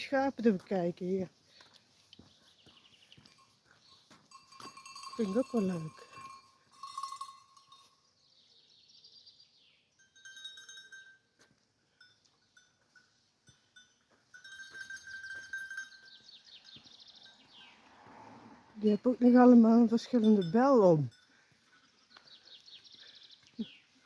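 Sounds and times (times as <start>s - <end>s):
sheep bells clanking: 2.7s - 8.1s, 9.9s - 17.7s, 19.0s - 23.8s.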